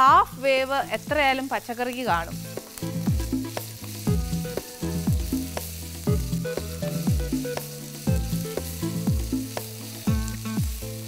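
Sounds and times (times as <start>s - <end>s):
vegetables sizzling in oil: 0.0s - 11.0s
background music with deep beat: 2.3s - 11.0s.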